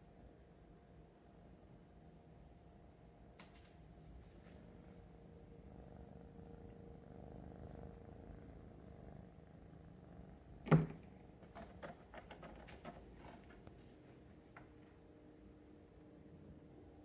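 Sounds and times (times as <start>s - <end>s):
kitten purring: 4.1s - 14.3s.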